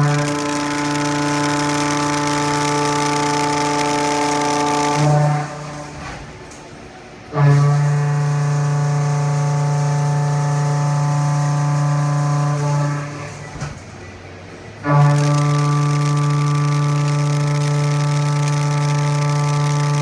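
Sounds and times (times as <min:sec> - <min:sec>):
milling machine cutting steel: 0:00.0 - 0:06.2, 0:14.9 - 0:20.0.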